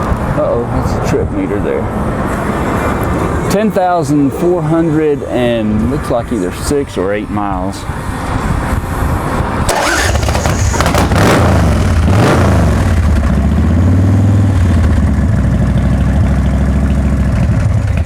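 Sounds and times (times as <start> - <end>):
motorcycle engine revving and idling: 9.7 - 18.0.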